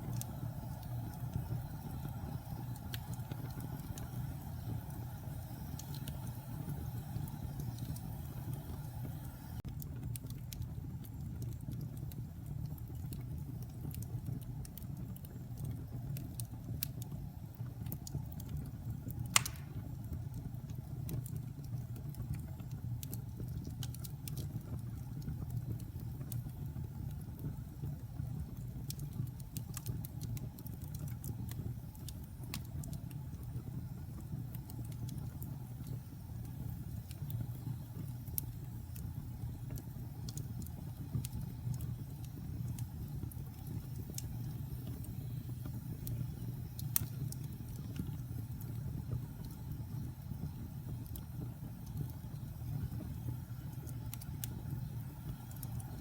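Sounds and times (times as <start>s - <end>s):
wood fire crackling: 0.0s - 56.0s
loud fire pop: 19.3s - 19.9s.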